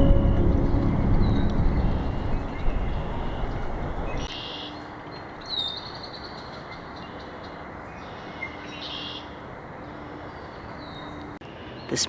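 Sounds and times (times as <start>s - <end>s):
low background rumble: 0.0s - 4.3s
songbirds singing: 0.0s - 11.4s.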